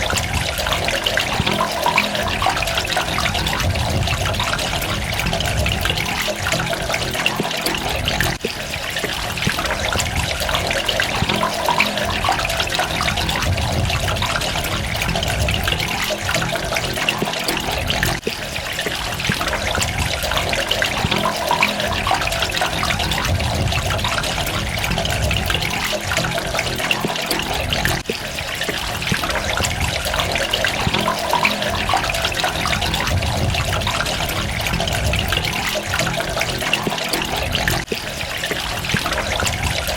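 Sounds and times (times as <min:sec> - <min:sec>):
running water splashing: 0:00.0 - 0:39.9.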